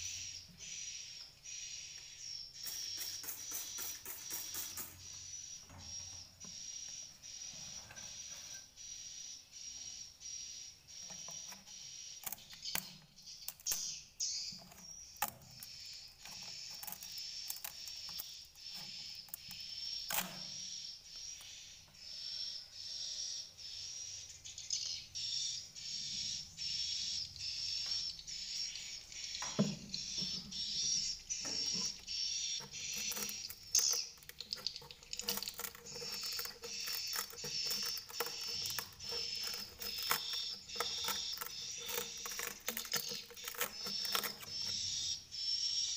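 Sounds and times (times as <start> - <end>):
swiftlets twittering: 2.4 - 7.5.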